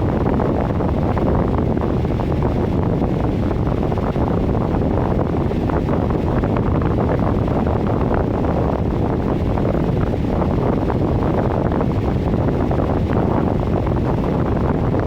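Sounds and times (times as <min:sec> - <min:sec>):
furnace blower rushing air: 0:00.0 - 0:15.0.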